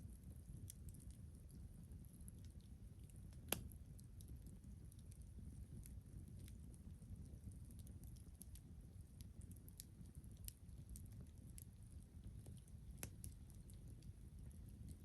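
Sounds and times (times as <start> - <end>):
campfire crackling and popping: 0.0 - 15.0
low steady fire rumble: 0.0 - 15.0.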